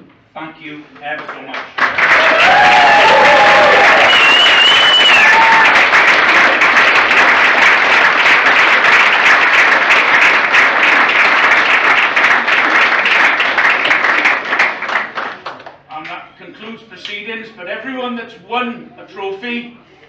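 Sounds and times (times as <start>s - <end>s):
audience applause: 1.7s - 15.8s.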